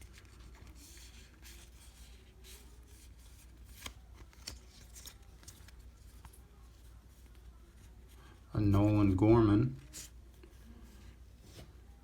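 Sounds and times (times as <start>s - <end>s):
trading cards rustling: 0.0s - 6.8s.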